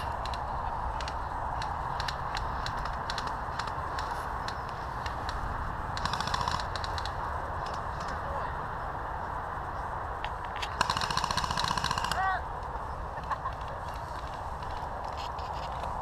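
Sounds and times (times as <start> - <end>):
steady low rumble: 0.0 - 16.0
rapid automatic gunfire: 6.0 - 7.0, 10.8 - 12.3.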